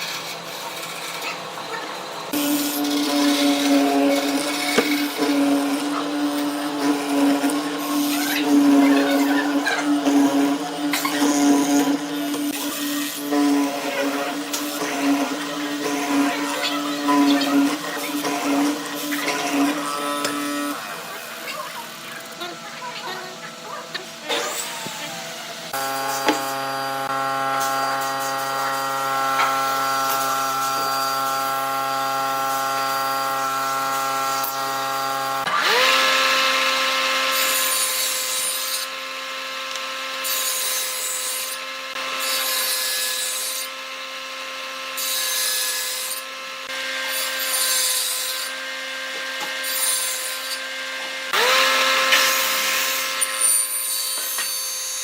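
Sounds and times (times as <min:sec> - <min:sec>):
high-pitched motor whining: 0:00.0 - 0:36.7
motor humming: 0:00.0 - 0:36.8
power tool cutting wood: 0:00.0 - 0:55.0.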